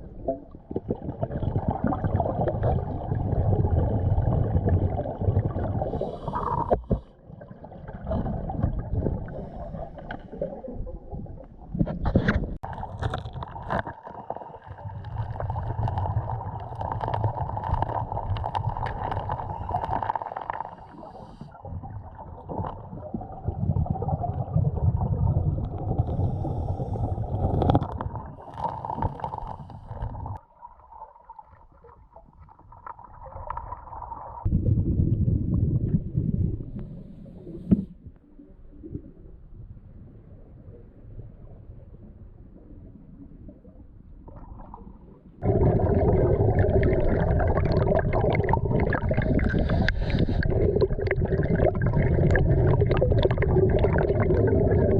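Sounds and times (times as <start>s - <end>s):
exhaust bubbles rumbling: 0.0s - 11.8s, 14.4s - 30.4s, 33.9s - 37.8s, 44.2s - 54.9s
scuba regulator breathing: 5.8s - 7.1s, 9.2s - 10.6s, 19.3s - 21.6s, 26.0s - 27.7s, 28.4s - 30.4s, 49.2s - 50.8s.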